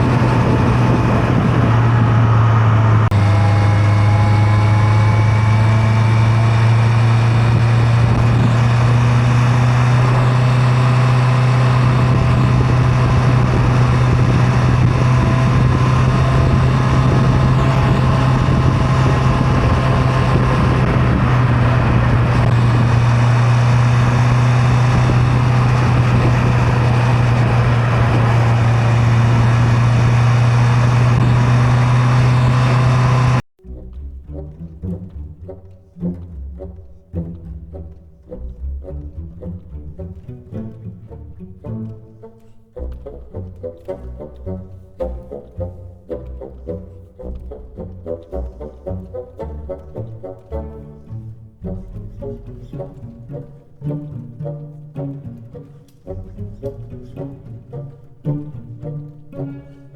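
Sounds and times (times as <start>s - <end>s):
motorcycle engine cruising: 0.0s - 33.4s.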